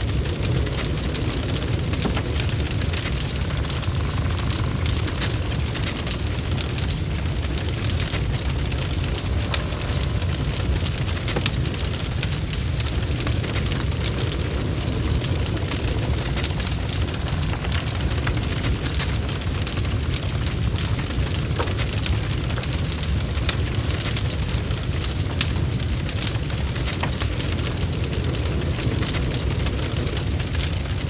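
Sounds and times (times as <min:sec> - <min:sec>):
bonfire crackling: 0:00.0 - 0:31.0.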